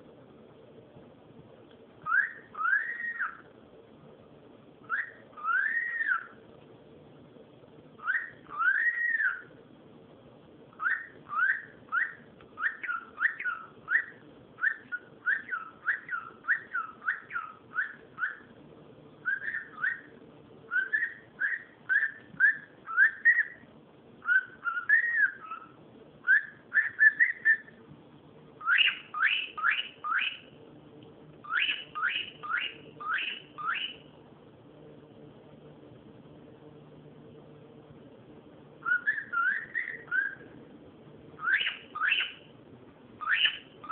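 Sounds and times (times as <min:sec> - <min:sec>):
cockatiel whistling chirps: 0:02.0 - 0:03.5, 0:04.8 - 0:06.4, 0:08.0 - 0:09.6, 0:10.8 - 0:18.5, 0:19.2 - 0:27.8, 0:28.6 - 0:30.6, 0:31.4 - 0:34.1, 0:38.8 - 0:40.6, 0:41.4 - 0:42.5, 0:43.2 - 0:43.9.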